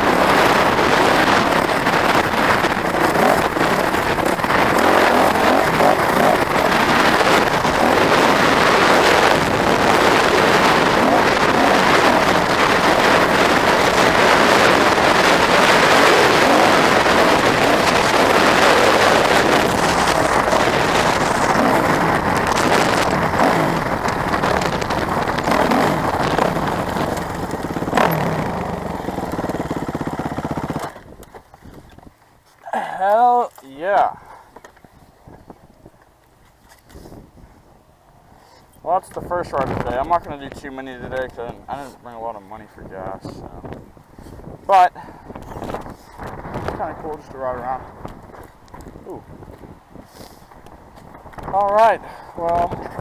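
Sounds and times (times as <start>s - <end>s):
off-road vehicle engine running: 0.0s - 31.9s.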